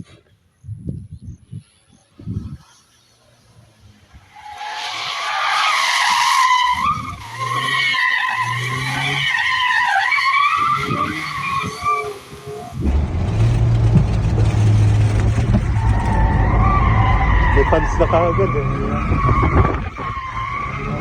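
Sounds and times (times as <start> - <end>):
tyres squealing: 4.6 - 21.0
truck engine running: 12.8 - 21.0.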